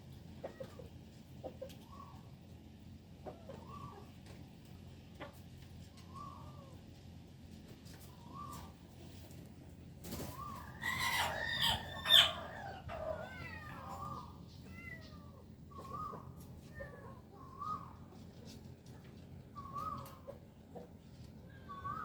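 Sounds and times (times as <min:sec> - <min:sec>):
high rising-and-falling animal calls: 0:10.2 - 0:18.2, 0:21.4 - 0:22.0.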